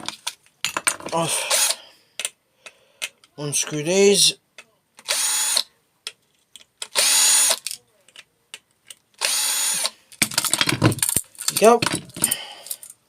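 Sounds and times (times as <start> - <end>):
power drill running: 1.5 - 1.8, 5.0 - 5.6, 6.9 - 7.6, 9.2 - 9.9.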